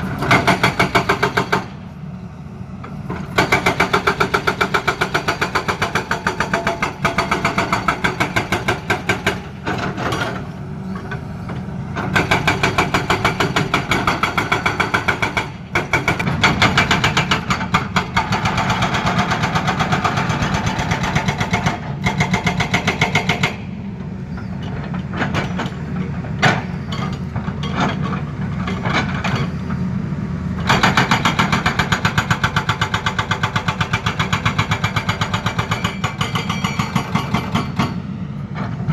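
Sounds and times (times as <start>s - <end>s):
hydraulic breaker hammering: 0.0s - 1.8s, 3.1s - 23.6s, 30.6s - 38.0s
excavator diesel engine running: 0.0s - 38.9s.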